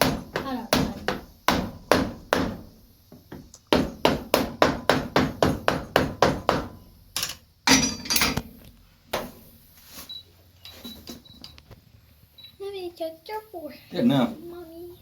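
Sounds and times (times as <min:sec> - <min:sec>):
hammer tapping nail: 0:03.3 - 0:06.7.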